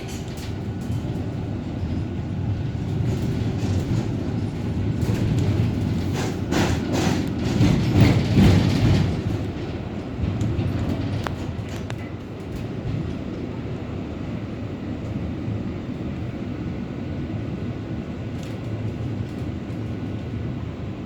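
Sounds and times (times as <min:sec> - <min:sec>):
wheels clattering over rails: 0:00.0 - 0:14.0
tram rumbling: 0:00.0 - 0:21.0.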